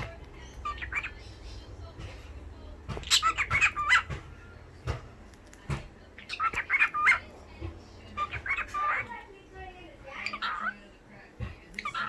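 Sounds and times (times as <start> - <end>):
cockatiel talking: 0.0 - 1.8, 2.9 - 4.2, 6.1 - 11.0, 11.7 - 12.0.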